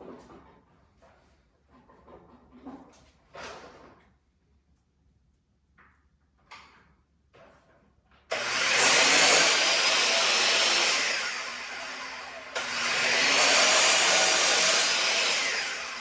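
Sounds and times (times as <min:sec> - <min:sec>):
electric tool motor running: 0:08.3 - 0:16.0.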